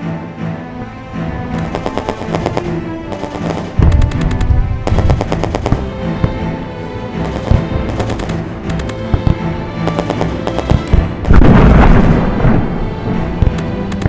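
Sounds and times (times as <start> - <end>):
music playing: 0.0 - 14.0
heavy low boom: 3.8 - 6.5, 10.7 - 13.6.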